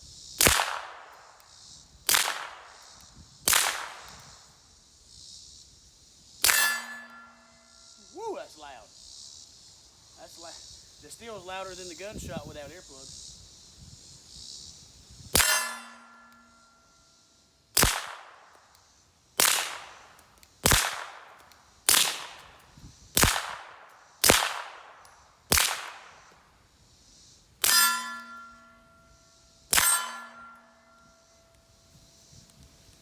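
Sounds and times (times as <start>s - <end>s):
suppressed pistol shots: 0.4s - 1.2s, 2.1s - 2.7s, 3.5s - 4.2s, 6.4s - 7.3s, 17.8s - 18.5s, 19.4s - 20.0s, 20.6s - 22.5s, 23.2s - 26.2s
steel target ringing: 6.4s - 7.7s, 15.4s - 16.8s, 27.6s - 29.0s, 29.7s - 31.0s.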